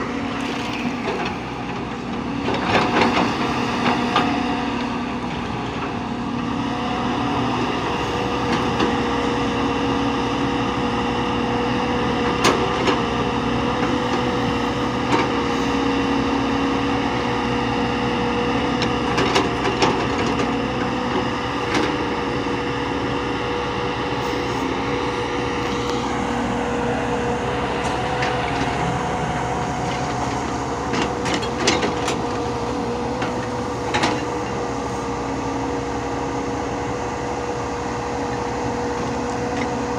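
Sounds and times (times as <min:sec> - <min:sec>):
machine engine running: 0:18.9 - 0:39.9.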